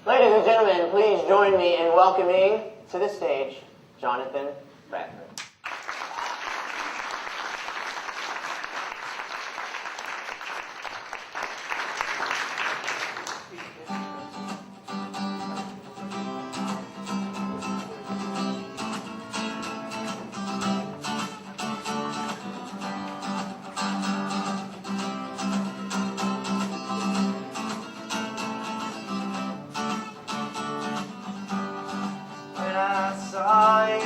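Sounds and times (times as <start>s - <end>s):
acoustic guitar playing: 13.8s - 34.0s.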